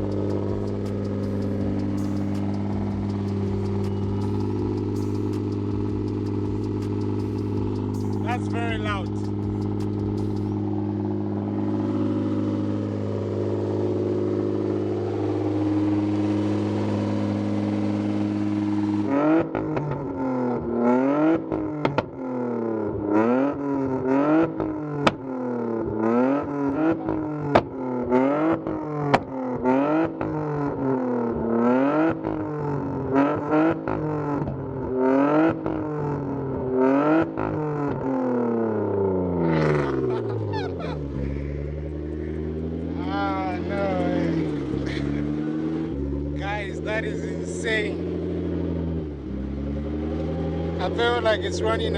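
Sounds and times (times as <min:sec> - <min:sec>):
exhaust pops and cracks: 0:00.0 - 0:10.7, 0:19.5 - 0:20.2, 0:21.5 - 0:22.2, 0:24.6 - 0:26.1, 0:27.4 - 0:27.9, 0:28.5 - 0:30.4
car engine revving: 0:00.0 - 0:51.9.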